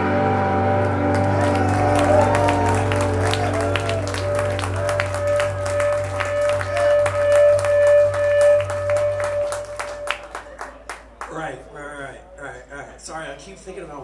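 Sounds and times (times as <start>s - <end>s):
low drone: 0.0s - 10.9s
live band holding a sustained note: 0.0s - 11.3s
audience clapping: 0.8s - 11.7s.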